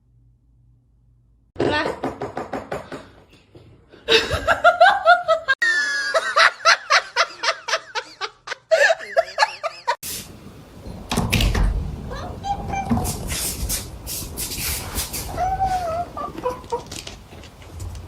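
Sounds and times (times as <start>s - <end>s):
person laughing: 4.1s - 10.0s.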